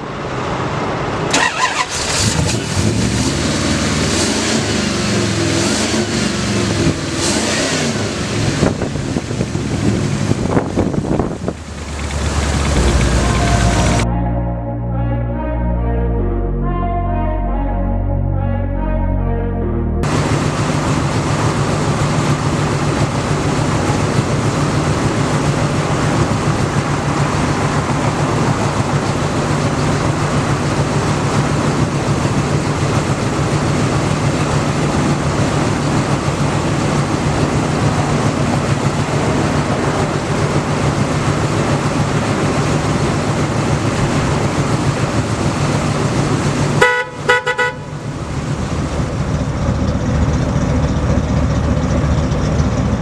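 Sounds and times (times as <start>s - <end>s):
pickup truck engine idling: 8.3s - 14.0s, 20.0s - 53.0s
car horn short beeps: 46.8s - 47.9s.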